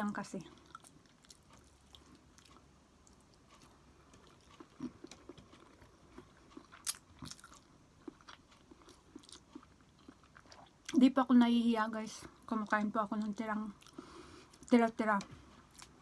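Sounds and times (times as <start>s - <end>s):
person chewing: 0.5s - 11.0s, 15.3s - 16.0s.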